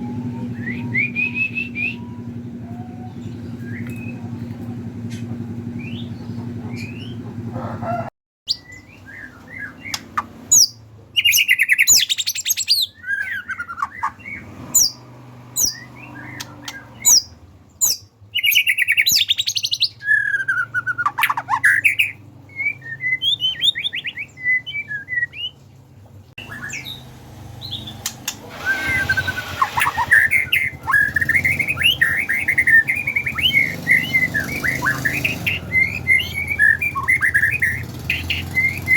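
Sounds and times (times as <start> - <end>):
songbird singing: 0.0 - 7.2, 8.5 - 25.7, 26.4 - 38.9.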